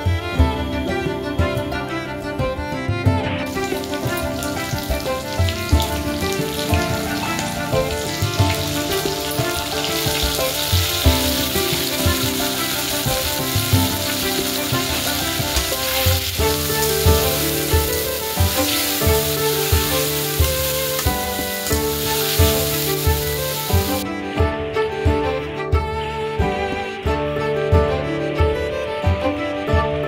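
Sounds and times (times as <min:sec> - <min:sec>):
background music: 0:00.0 - 0:30.0
onions sizzling in oil: 0:03.5 - 0:24.0.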